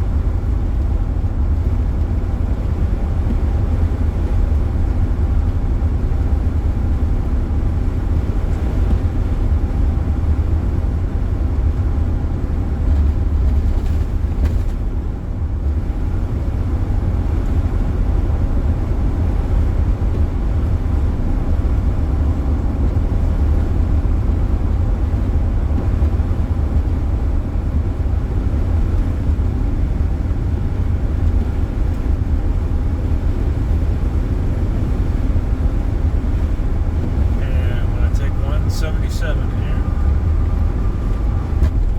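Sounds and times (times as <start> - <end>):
road and wind noise in car: 0.0 - 41.9.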